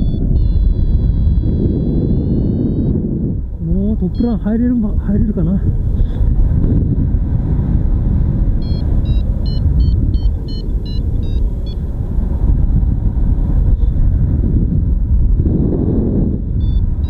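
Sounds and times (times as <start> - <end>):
variometer beeping quickly: 0.0 - 3.2, 3.9 - 4.8, 8.6 - 11.9, 16.6 - 17.0
wind rushing over microphone: 0.0 - 17.0.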